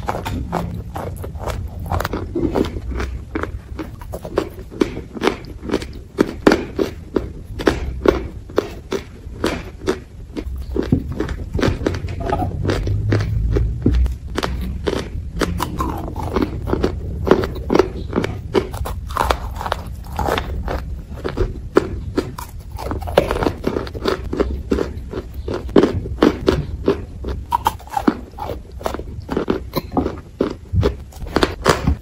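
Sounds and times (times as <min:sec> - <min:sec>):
chalk being chewed: 0:00.0 - 0:31.8.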